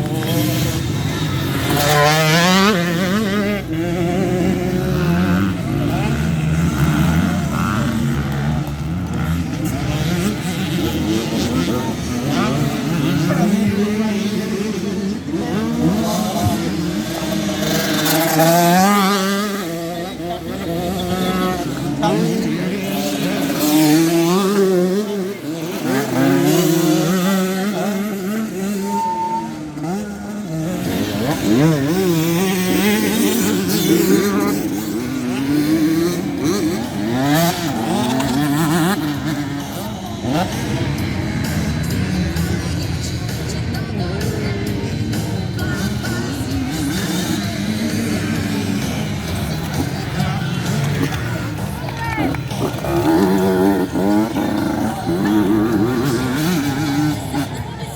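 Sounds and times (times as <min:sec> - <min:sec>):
motocross bikes revving: 0:00.0 - 0:57.9.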